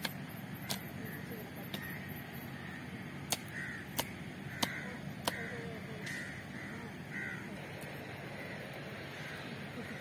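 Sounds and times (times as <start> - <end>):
sharp clicks: 0.0 - 1.0, 3.2 - 5.5
bird calling harshly: 0.5 - 7.6.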